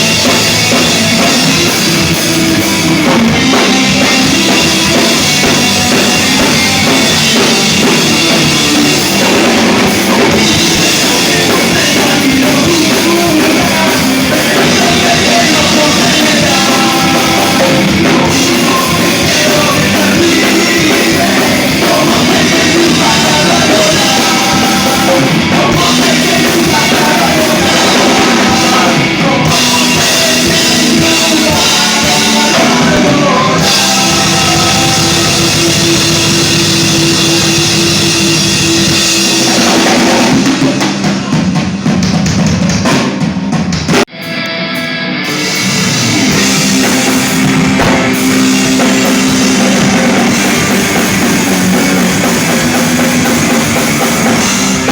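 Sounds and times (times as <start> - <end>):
live rock band playing: 0.0 - 54.9
person singing: 1.0 - 41.5.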